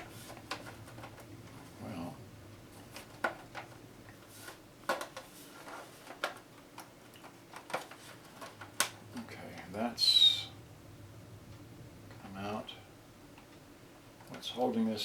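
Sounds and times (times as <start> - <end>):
plastic parts clicking and knocking: 2.9 - 3.8, 4.8 - 9.0.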